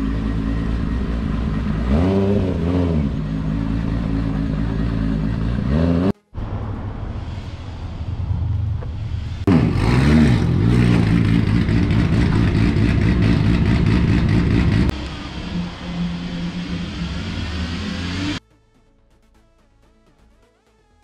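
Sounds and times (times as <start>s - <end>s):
street noise: 0.0s - 19.8s
car engine idling unevenly: 11.0s - 15.4s.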